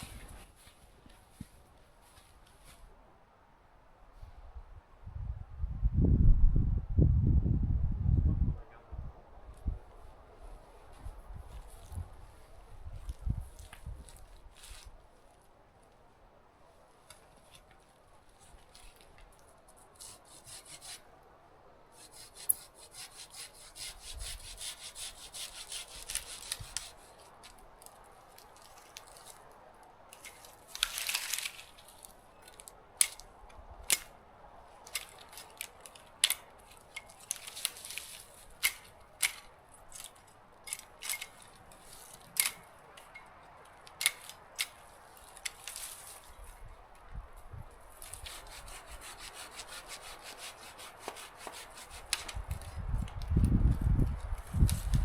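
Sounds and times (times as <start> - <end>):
footsteps crunching in snow: 0.0 - 2.9
rustling through brush: 0.0 - 3.0, 10.0 - 16.2, 16.8 - 21.0, 21.9 - 55.0.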